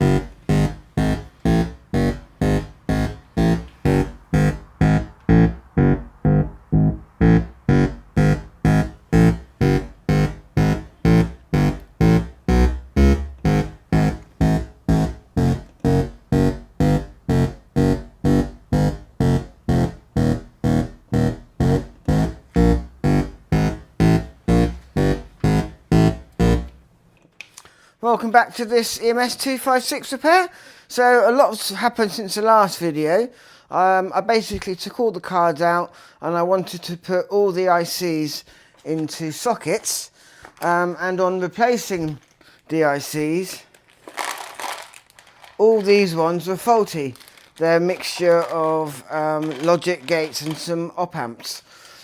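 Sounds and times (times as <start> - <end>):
plucked synthesizer notes: 0.0 - 26.9, 47.2 - 48.5.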